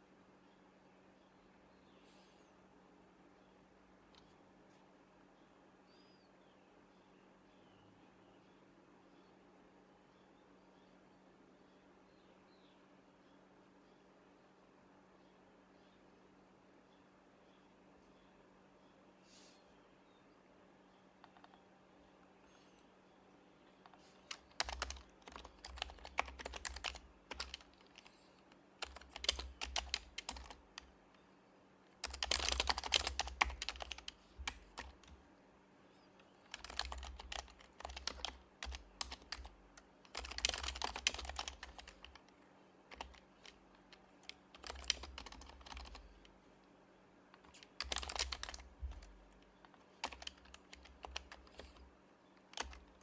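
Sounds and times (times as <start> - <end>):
soft keyboard typing: 21.2 - 22.9, 23.7 - 31.2, 31.9 - 35.3, 36.2 - 53.0.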